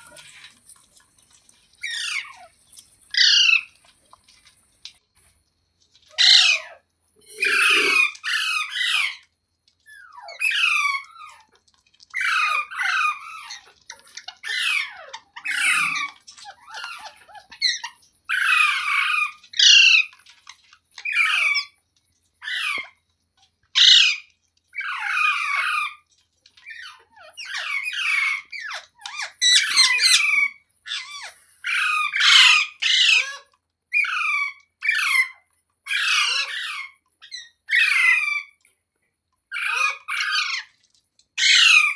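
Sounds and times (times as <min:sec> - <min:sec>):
parrot squawking: 0:03.2 - 0:03.6, 0:06.2 - 0:09.2, 0:14.4 - 0:20.1, 0:23.8 - 0:24.2, 0:26.7 - 0:38.5, 0:39.6 - 0:40.7, 0:41.4 - 0:41.9.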